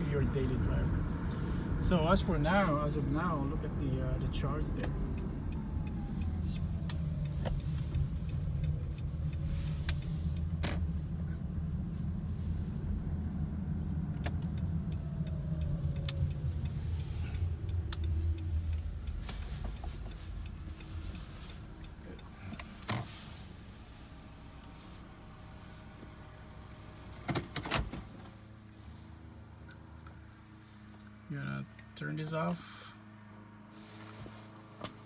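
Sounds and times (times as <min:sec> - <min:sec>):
low rumble in car cabin: 0:00.0 - 0:33.0
sharp clicks: 0:14.1 - 0:22.0.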